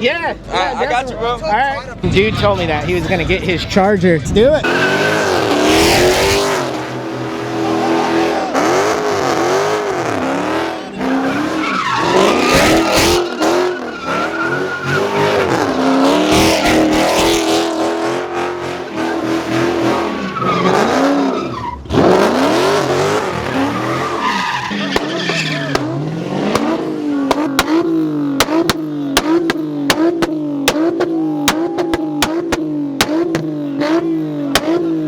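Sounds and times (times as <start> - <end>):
car engine revving: 2.0 - 35.0
tyres squealing: 6.7 - 17.3, 22.8 - 27.8.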